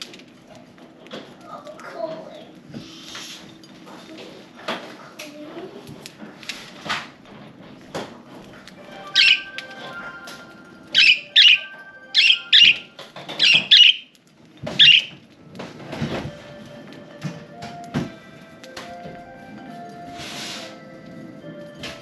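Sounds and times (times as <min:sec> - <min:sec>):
budgerigars chirping: 0:09.1 - 0:09.5, 0:11.0 - 0:14.1, 0:14.7 - 0:15.2.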